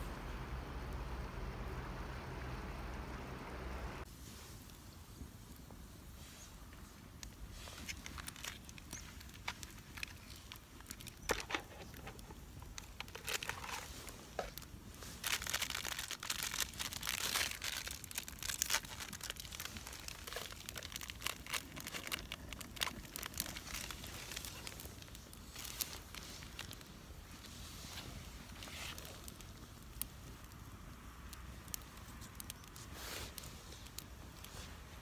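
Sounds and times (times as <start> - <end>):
material crinkling and rustling: 5.6 - 30.4.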